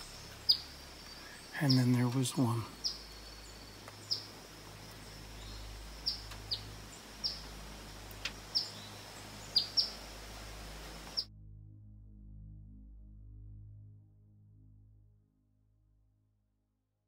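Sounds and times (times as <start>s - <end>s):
bird chip calls: 0.0s - 11.3s.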